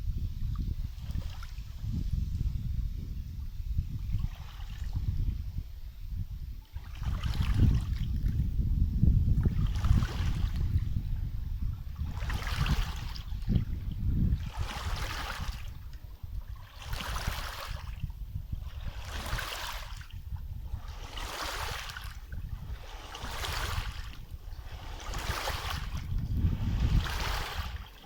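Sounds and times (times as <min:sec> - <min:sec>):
wind rumble on microphone: 0:00.0 - 0:28.0
small waves lapping: 0:00.9 - 0:01.8, 0:04.1 - 0:05.2, 0:06.6 - 0:08.4, 0:09.4 - 0:11.1, 0:11.7 - 0:28.0.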